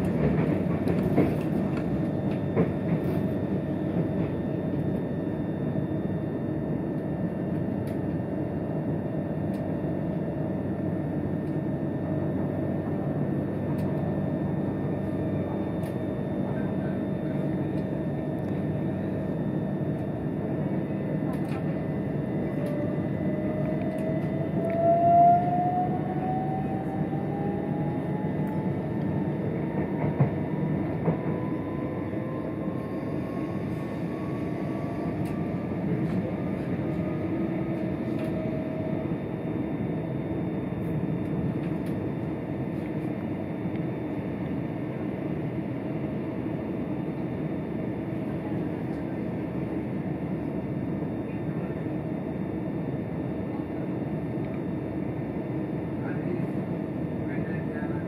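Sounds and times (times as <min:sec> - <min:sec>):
train running rumble: 0:00.0 - 0:05.0, 0:10.8 - 0:39.9
thin whine rising in pitch: 0:22.8 - 0:29.6.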